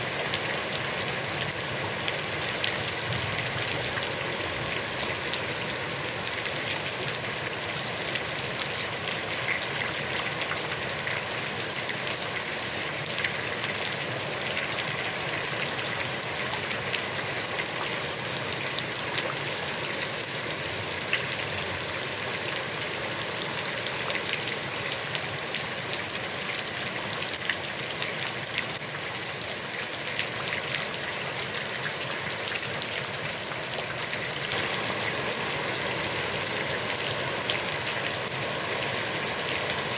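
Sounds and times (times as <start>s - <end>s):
heavy rain falling on a pond: 0.0s - 39.9s.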